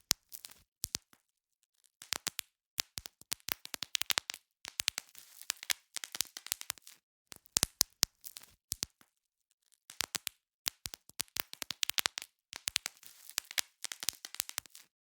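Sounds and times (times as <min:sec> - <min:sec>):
bubble wrap popping: 0:02.0 - 0:09.1, 0:09.9 - 0:14.9.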